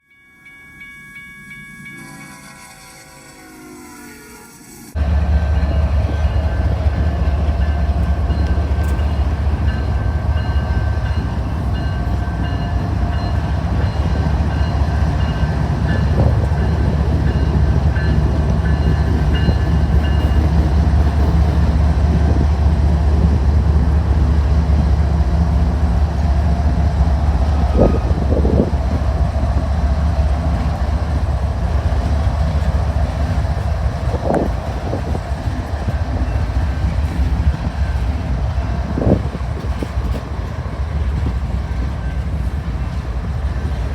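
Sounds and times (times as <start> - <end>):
train rumbling past: 1.2 - 43.9.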